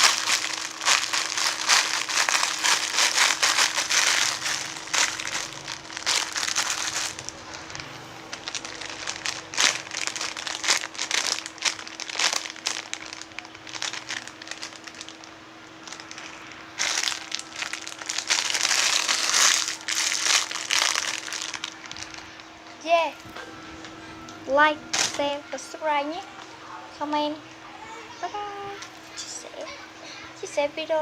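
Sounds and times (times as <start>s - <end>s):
plastic crinkling: 0.0s - 22.8s.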